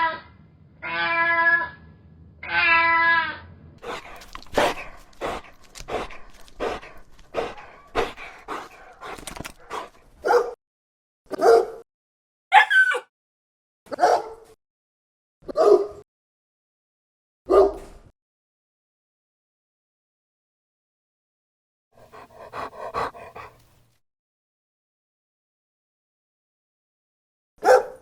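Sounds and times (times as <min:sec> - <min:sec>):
dog barking: 0:07.4 - 0:10.6, 0:11.3 - 0:11.8, 0:12.5 - 0:13.1, 0:13.9 - 0:14.6, 0:15.5 - 0:16.0, 0:17.5 - 0:17.9, 0:27.6 - 0:28.0.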